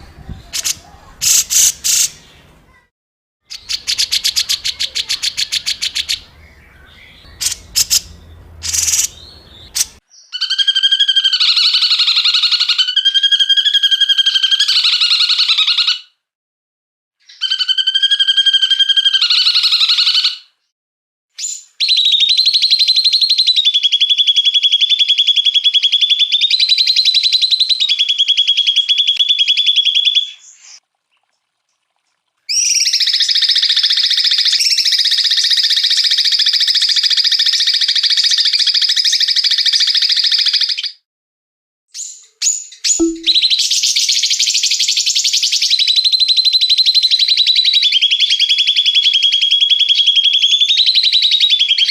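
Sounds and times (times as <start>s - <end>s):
songbird buzzy rattling trills: 3.5s - 10.0s.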